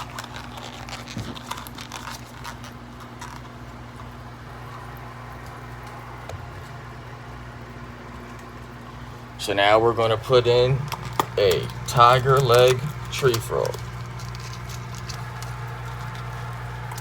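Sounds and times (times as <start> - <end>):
rustling: 0.0 - 4.8, 10.8 - 17.0
steady low hum: 0.0 - 17.0.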